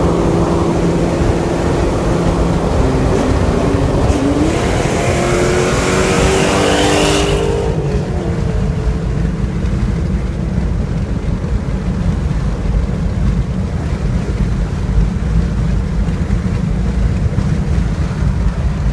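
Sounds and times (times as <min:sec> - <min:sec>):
car engine low rumble: 0:00.0 - 0:18.9
road and wind noise: 0:00.0 - 0:18.9.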